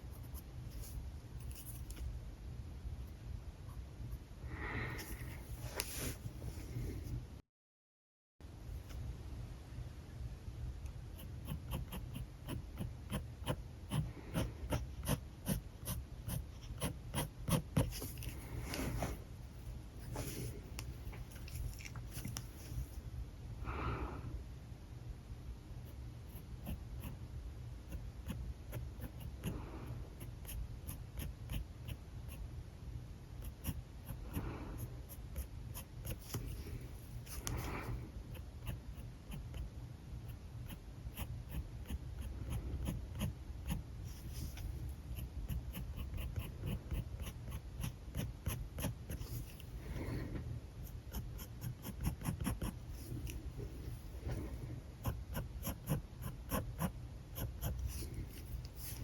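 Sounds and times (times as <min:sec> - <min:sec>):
marker scratching on paper: 0:11.4 - 0:19.2, 0:40.7 - 0:49.6, 0:51.1 - 0:53.4, 0:54.3 - 0:59.0.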